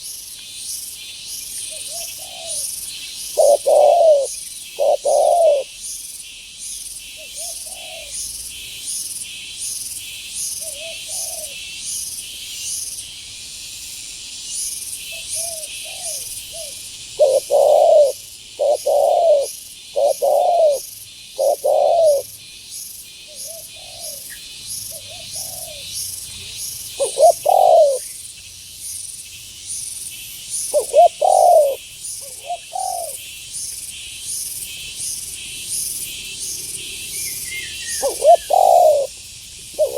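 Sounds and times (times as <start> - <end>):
insect chorus pulsing: 0.0 - 39.9
doves cooing: 1.9 - 2.7, 3.3 - 5.7, 7.4 - 8.1, 15.4 - 22.3, 24.9 - 25.9, 27.0 - 28.1, 30.7 - 33.2, 37.8 - 39.9.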